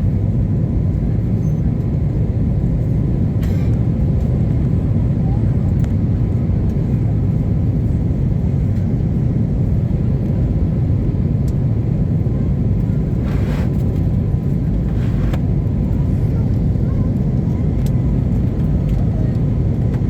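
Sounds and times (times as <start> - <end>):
airplane engines rumbling: 0.0 - 20.0
rushing air: 13.1 - 13.9.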